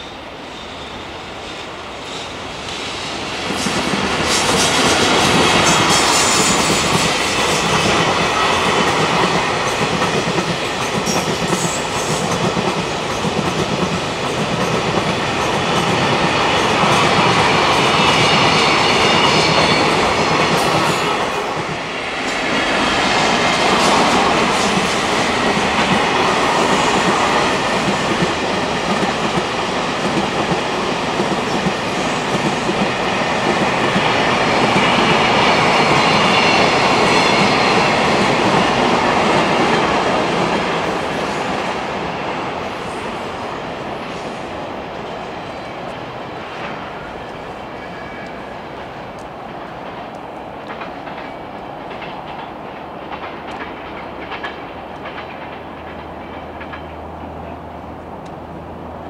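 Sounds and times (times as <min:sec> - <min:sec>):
freight train rumbling: 0:00.0 - 0:59.0.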